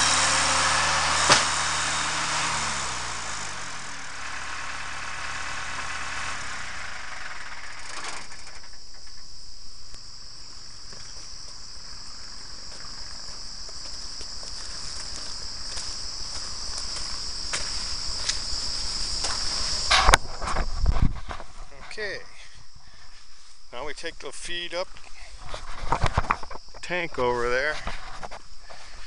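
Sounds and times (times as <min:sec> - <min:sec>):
tractor engine winding down: 0:00.0 - 0:09.2
insects chirring: 0:00.0 - 0:29.0.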